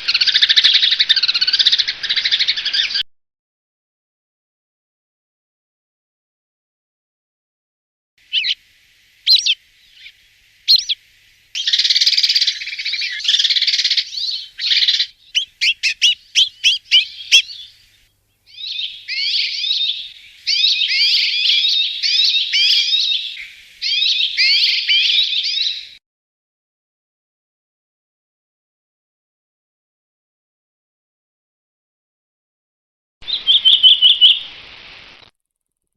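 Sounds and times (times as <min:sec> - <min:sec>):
songbird singing: 0:00.0 - 0:03.0, 0:08.2 - 0:26.0, 0:33.2 - 0:35.3.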